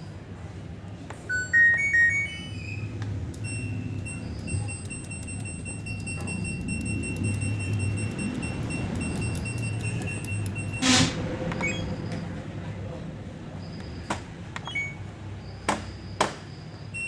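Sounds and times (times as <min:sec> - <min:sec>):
control panel beeps: 0:01.3 - 0:10.9, 0:11.6 - 0:12.0, 0:13.7 - 0:15.1
steady high tone: 0:01.3 - 0:12.2
low hum: 0:02.2 - 0:14.7
fast even ticking: 0:03.4 - 0:10.7.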